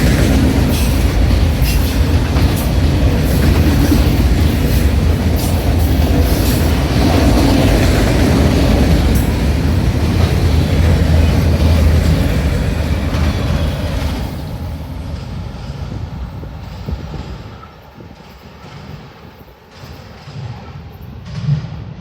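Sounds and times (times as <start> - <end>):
train wheel clicks: 0.0 - 21.7
freight train cars rumbling: 0.0 - 22.0.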